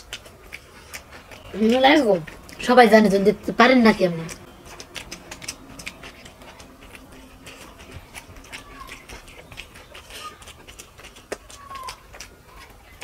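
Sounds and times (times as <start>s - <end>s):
fingers squishing rice: 0.0s - 2.7s, 3.8s - 13.0s
wet chewing and lip-smacking: 0.0s - 13.0s.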